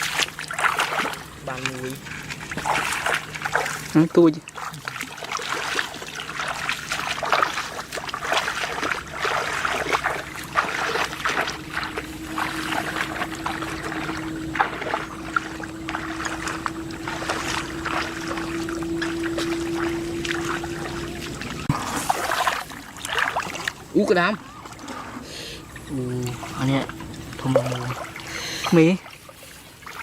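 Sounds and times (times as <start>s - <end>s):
higher hum: 0.0s - 30.0s
steady mechanical hum: 0.0s - 30.0s
water splashing in shallow water: 0.0s - 30.0s.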